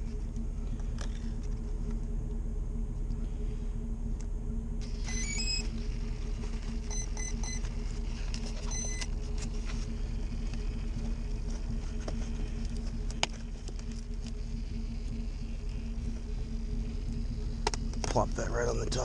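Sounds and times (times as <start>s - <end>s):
steady low hum: 0.0s - 19.0s
rising electronic tones: 3.9s - 12.9s
short electronic beeps: 5.0s - 5.6s, 8.6s - 9.1s.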